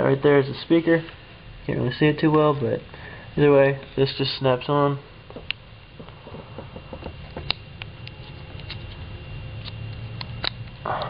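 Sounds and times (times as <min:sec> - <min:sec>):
low rumble of fingers moving: 0:05.2 - 0:11.0.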